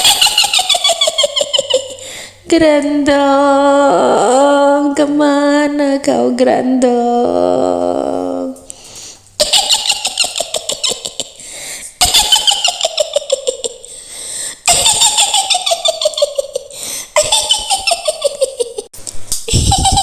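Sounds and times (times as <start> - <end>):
woman cackling: 9.4 - 11.4, 12.0 - 13.9, 14.7 - 18.9, 19.5 - 20.0.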